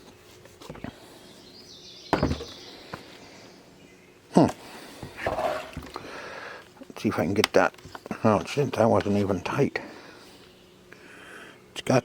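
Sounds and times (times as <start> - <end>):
handling noise: 2.1 - 2.8
knock: 2.2 - 2.5.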